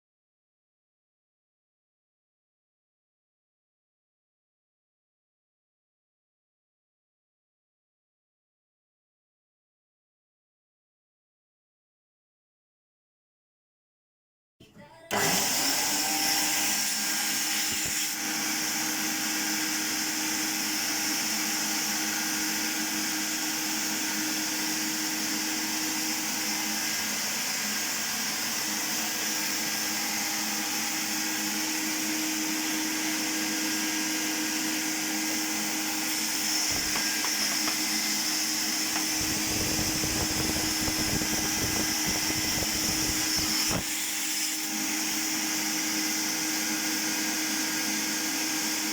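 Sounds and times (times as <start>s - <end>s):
vacuum cleaner motor whining: 15.1s - 48.9s.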